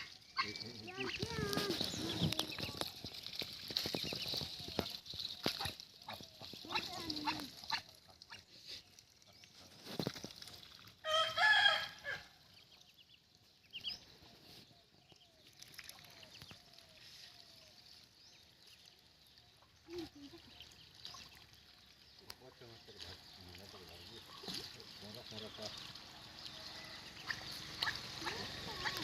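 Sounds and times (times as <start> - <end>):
rooster crowing: 11.0 - 12.3.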